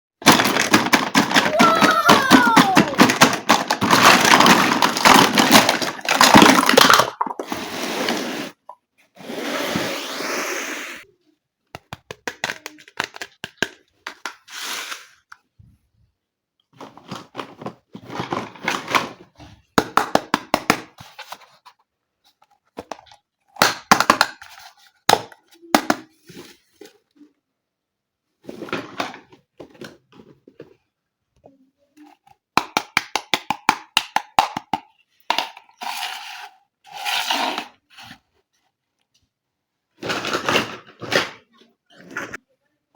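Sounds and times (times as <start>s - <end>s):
plastic toy pieces clicking: 0.3s - 7.4s.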